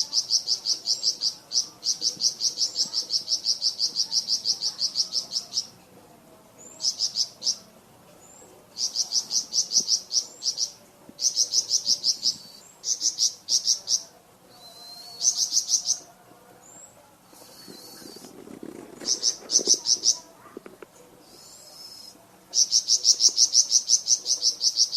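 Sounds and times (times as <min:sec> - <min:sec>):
rising bird whistles: 0:14.5 - 0:15.6, 0:17.4 - 0:18.3.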